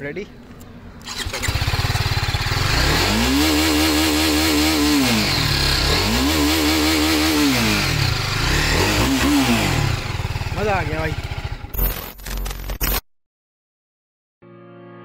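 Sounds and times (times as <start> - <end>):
motorcycle engine idling and revving: 0.9 - 12.0.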